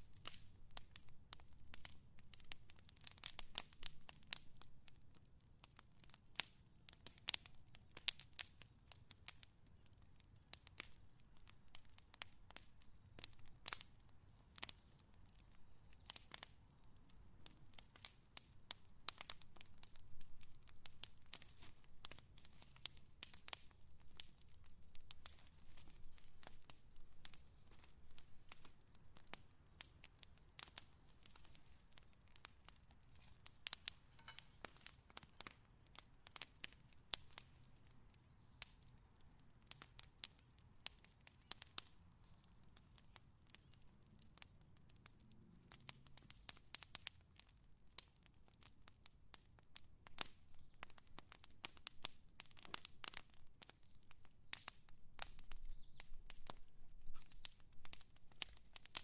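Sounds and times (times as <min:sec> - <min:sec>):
fire crackling: 0:00.0 - 0:59.0.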